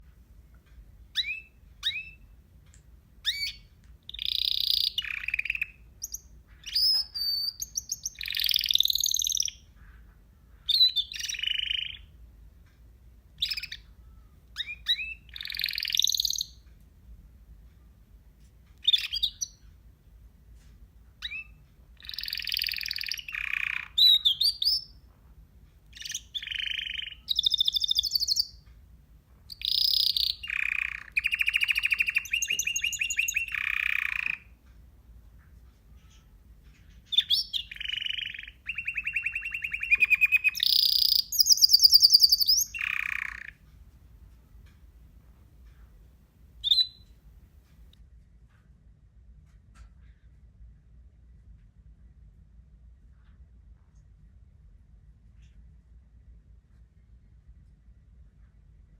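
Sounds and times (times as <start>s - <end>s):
parrot chirping and calling: 1.2s - 2.3s, 3.2s - 9.6s, 10.7s - 12.1s, 13.4s - 13.8s, 14.6s - 16.6s, 18.8s - 19.6s, 21.2s - 24.9s, 26.0s - 28.6s, 29.5s - 34.5s, 37.0s - 43.6s, 46.6s - 47.0s.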